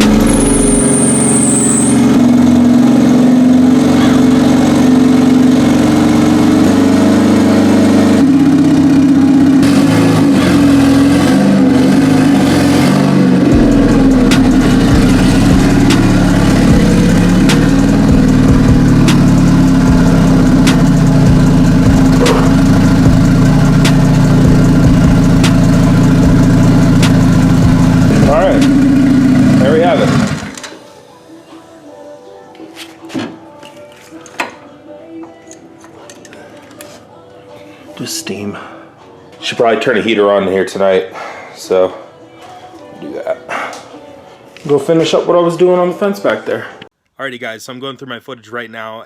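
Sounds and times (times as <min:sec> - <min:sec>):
car engine idling: 0:00.0 - 0:30.6.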